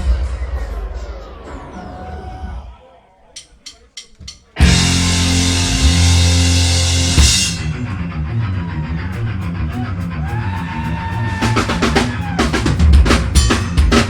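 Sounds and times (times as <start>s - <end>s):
drum fill: 3.5s - 8.0s
cymbal crash: 4.6s - 8.0s
high sliding guitar tone: 4.6s - 10.2s
heavy metal band playing: 4.6s - 14.0s.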